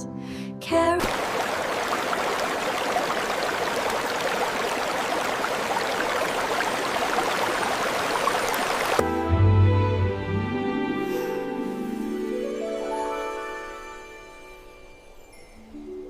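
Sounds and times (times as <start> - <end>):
rain falling: 1.0 - 9.0.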